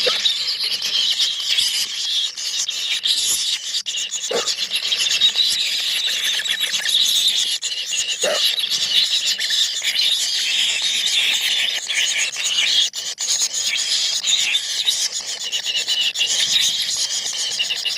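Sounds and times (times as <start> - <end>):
nestlings chattering begging calls: 0.0 - 11.8.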